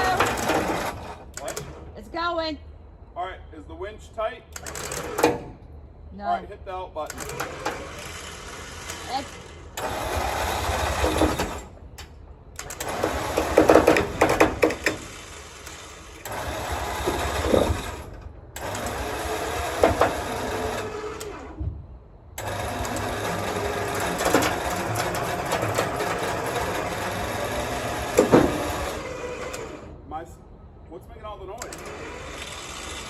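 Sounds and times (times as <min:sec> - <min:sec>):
winch motor whirring: 0:00.0 - 0:02.3, 0:04.5 - 0:05.7, 0:07.0 - 0:21.7, 0:22.3 - 0:30.2, 0:31.2 - 0:33.0
loud clunks: 0:21.4 - 0:29.9.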